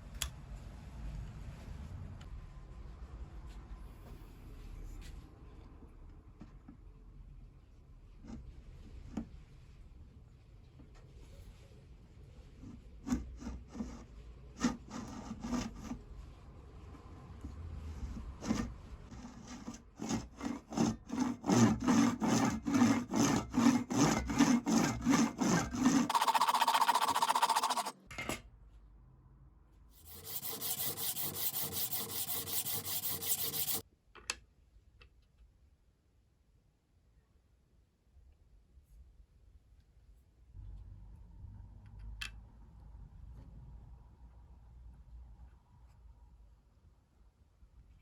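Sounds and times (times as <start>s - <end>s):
hand rubbing against wood: 26.1s - 27.9s, 30.0s - 33.8s.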